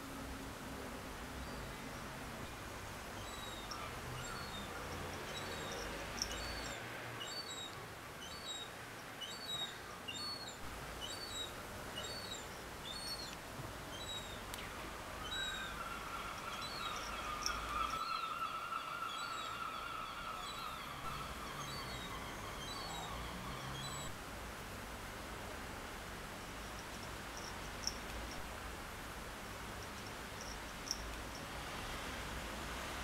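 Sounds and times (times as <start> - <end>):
birds chirping: 3.0 - 24.2.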